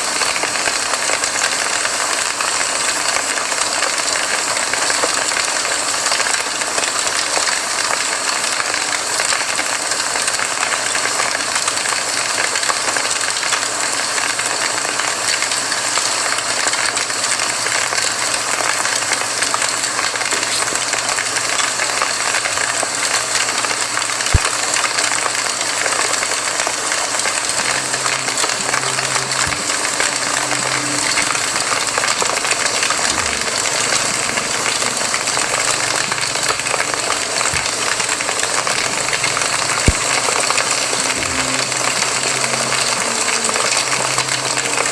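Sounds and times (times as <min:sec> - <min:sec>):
campfire crackling: 0:19.6 - 0:44.9.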